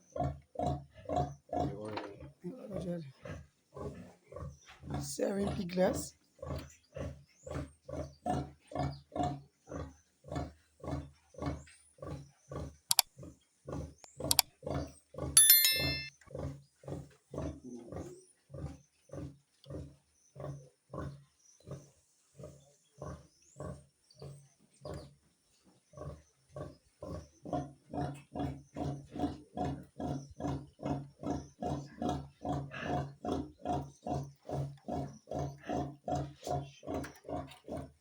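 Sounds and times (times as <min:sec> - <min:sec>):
pig grunting: 0:00.1 - 0:12.7, 0:16.9 - 0:21.2, 0:26.0 - 0:38.0.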